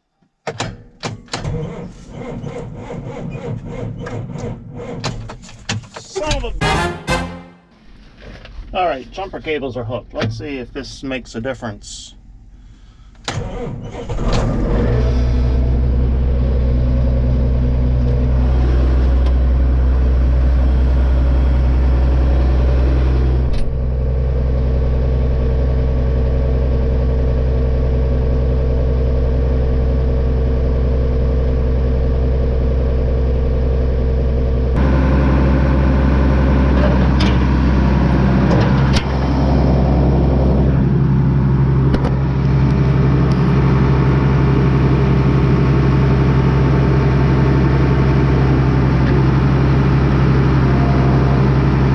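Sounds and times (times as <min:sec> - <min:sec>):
farm machine engine running: 0:34.8 - 0:38.5, 0:39.2 - 0:51.9.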